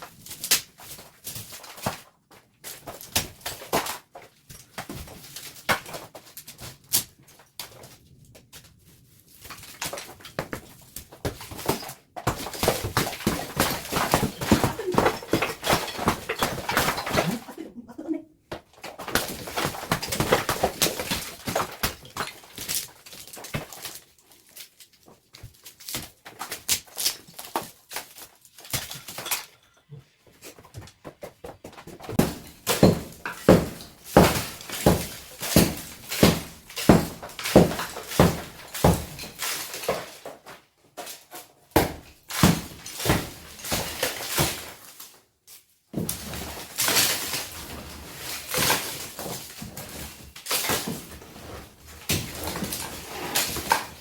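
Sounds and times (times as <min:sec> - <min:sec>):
knocks and thuds of repair work: 0:09.8 - 0:17.4, 0:30.6 - 0:40.2.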